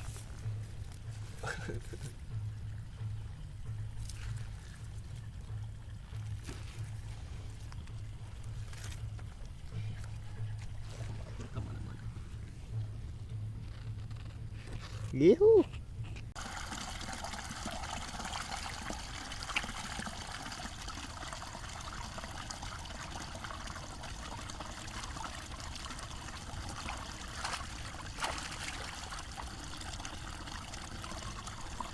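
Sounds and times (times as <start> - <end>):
water trickling: 16.4 - 31.9.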